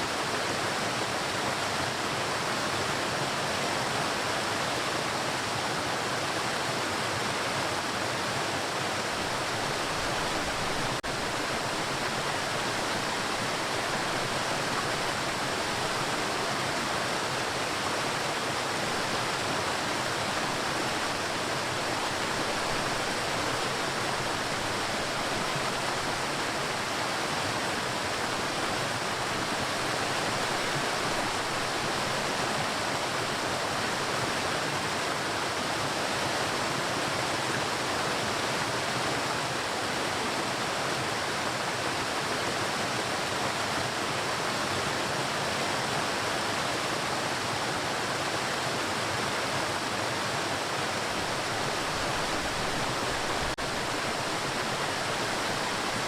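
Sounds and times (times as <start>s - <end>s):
waterfall hissing: 7.8s - 35.5s, 49.5s - 56.0s.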